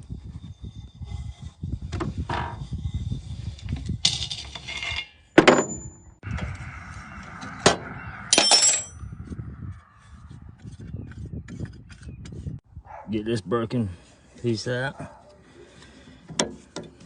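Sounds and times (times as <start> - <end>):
metal scrape: 0.0 - 5.4
metal tools clinking: 4.0 - 6.0, 8.3 - 9.0.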